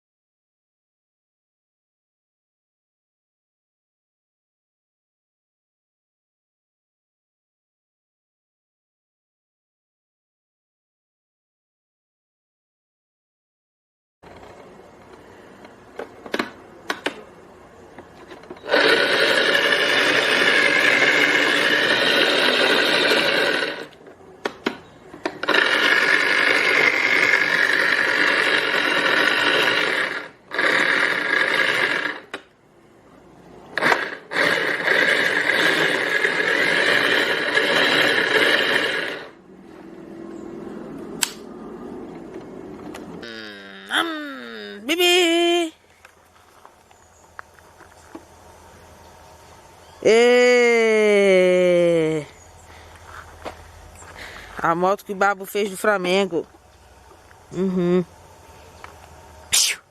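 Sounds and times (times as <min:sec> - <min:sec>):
electric motor whirring: 0:18.6 - 0:24.0, 0:25.2 - 0:32.5, 0:33.7 - 0:39.4
sharp clicks: 0:41.2 - 0:41.5.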